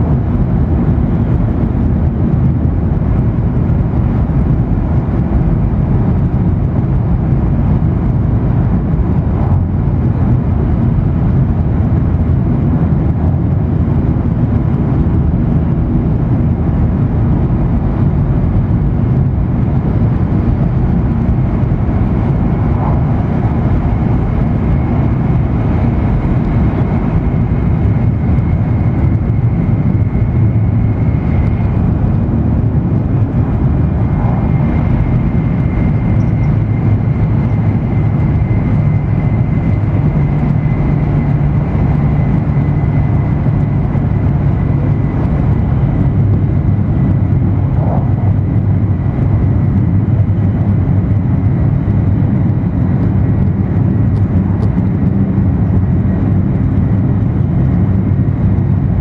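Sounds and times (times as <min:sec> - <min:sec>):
train rumble inside cabin: 0:00.0 - 0:59.0.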